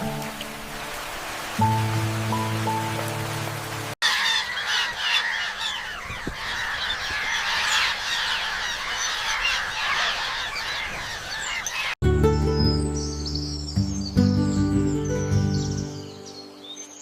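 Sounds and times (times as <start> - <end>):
flock of birds squawking: 4.0 - 12.0.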